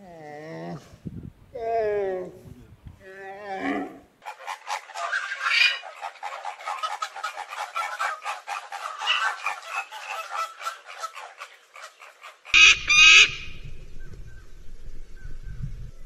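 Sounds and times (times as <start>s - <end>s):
flamingos gabbling: 4.2s - 13.6s
harsh bird calls: 4.2s - 14.2s.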